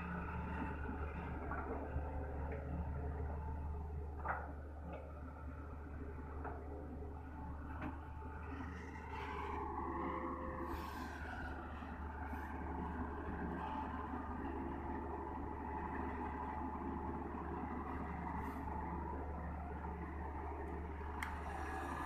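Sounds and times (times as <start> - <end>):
heavy diesel engine droning: 7.5 - 22.0.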